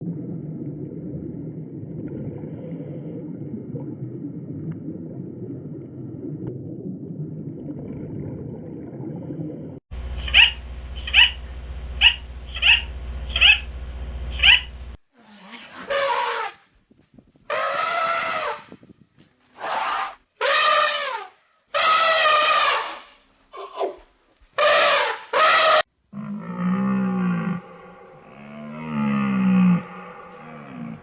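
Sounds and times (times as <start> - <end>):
high-pitched animal calls: 10.2 - 11.4, 12.0 - 13.7, 14.4 - 16.6, 26.4 - 31.0
longer lower animal calls: 10.2 - 11.4, 12.0 - 13.6, 17.5 - 18.7, 19.6 - 23.9, 24.6 - 31.0.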